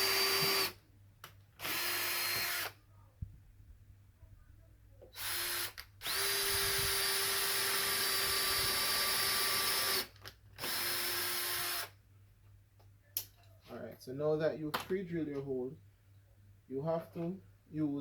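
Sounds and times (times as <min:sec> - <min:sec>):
power drill whining: 0:00.0 - 0:00.8, 0:01.6 - 0:02.8, 0:05.2 - 0:11.9.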